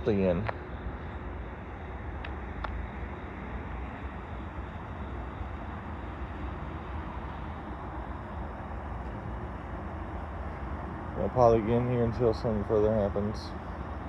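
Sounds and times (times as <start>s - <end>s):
idling diesel locomotives: 0.0s - 14.0s.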